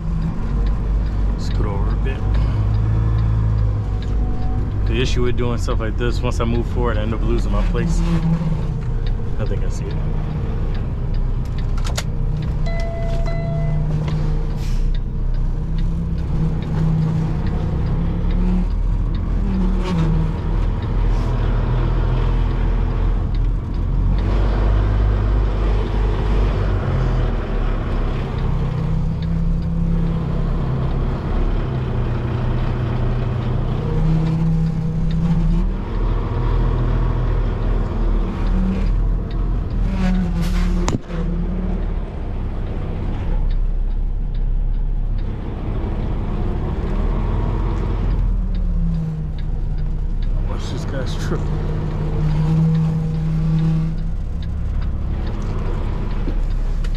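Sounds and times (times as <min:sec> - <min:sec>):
diesel truck engine running: 0:00.0 - 0:56.9
short beep: 0:12.6 - 0:13.9.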